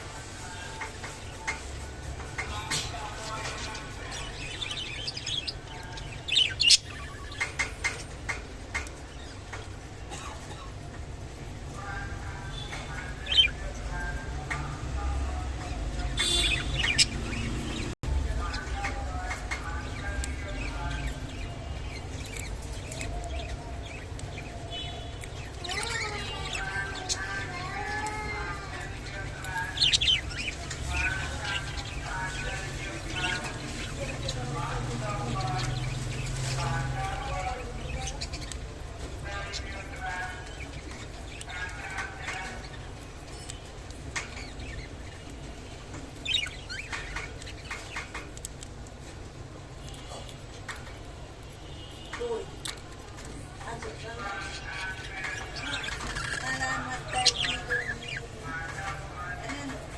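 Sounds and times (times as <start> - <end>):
budgerigars chirping and warbling: 0.4 - 9.9, 11.8 - 48.7, 52.0 - 59.9
budgerigars chirping: 16.0 - 27.4, 54.1 - 59.5.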